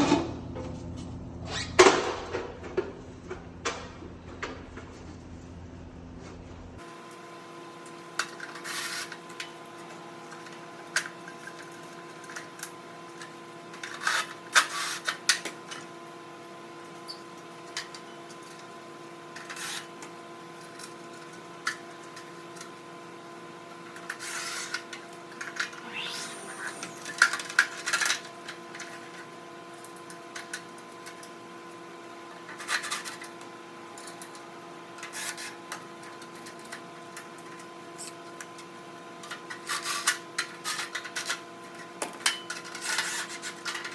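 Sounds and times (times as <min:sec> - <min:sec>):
steady multi-tone hum: 0:25.6 - 0:28.1.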